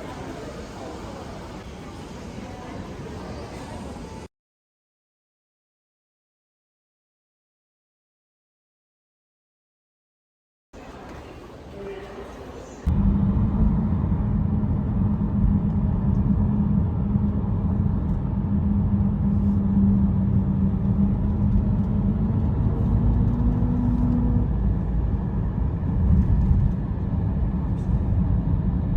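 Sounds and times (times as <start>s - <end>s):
vehicle engine rumbling: 12.9s - 28.9s.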